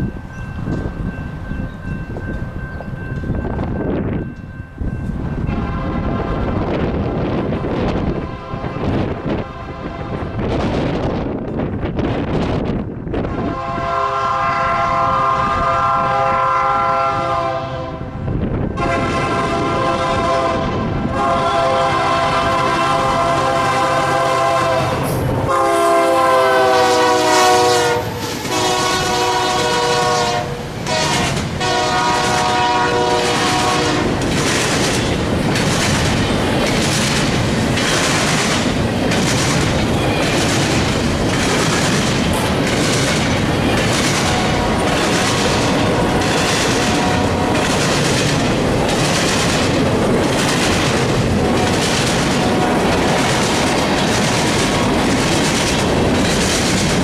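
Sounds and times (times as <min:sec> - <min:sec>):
locomotive horn blasts: 0:05.5 - 0:06.6, 0:07.6 - 0:10.4, 0:13.3 - 0:18.2, 0:18.8 - 0:34.2, 0:44.2 - 0:47.7, 0:52.4 - 0:52.9
freight cars rumbling: 0:33.2 - 0:57.0
train wheel clicks: 0:33.2 - 0:57.0.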